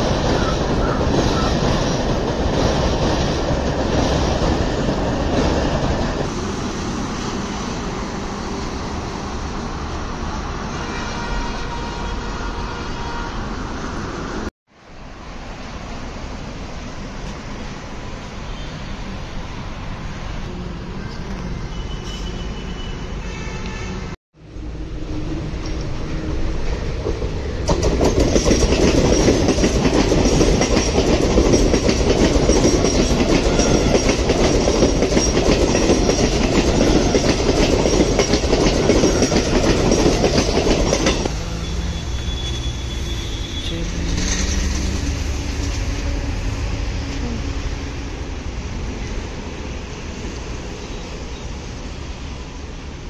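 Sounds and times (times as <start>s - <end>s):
train wheels clattering on rails: 26.6s - 41.4s, 44.0s - 46.0s.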